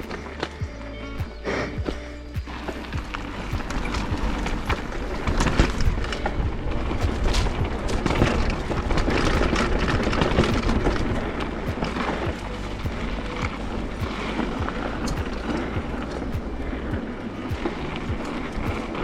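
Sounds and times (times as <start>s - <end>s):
bike frame and chain rattling: 0.0s - 19.0s
wind rumble on camera: 0.0s - 19.0s.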